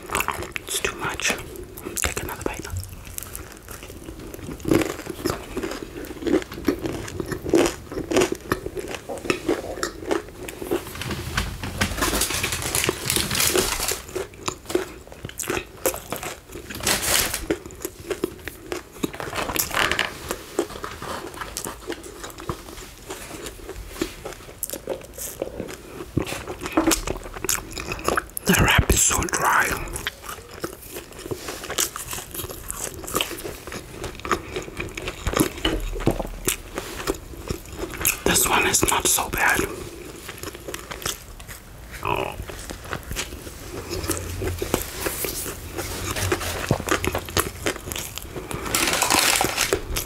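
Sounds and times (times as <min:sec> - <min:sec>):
chewing with crunches: 0:00.0 - 0:50.0
wrapper rustling: 0:10.6 - 0:14.8, 0:16.3 - 0:18.0, 0:42.5 - 0:50.0
wet mouth sounds: 0:37.4 - 0:39.8.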